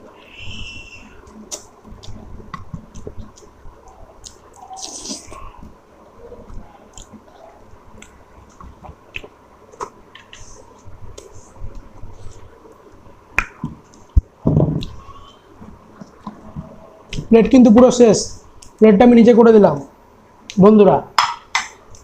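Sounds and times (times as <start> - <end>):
wet chewing and mouth smacking: 1.2 - 5.6, 6.4 - 12.5.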